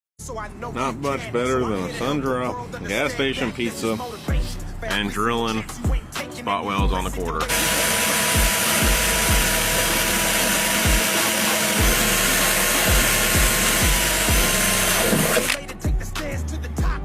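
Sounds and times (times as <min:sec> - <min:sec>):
hip hop music with kick drum: 0:01.9 - 0:17.0
power drill whining: 0:07.5 - 0:15.6.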